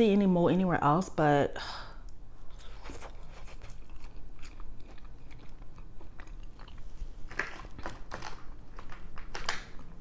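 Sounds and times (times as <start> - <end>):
person chewing food: 2.4 - 10.0.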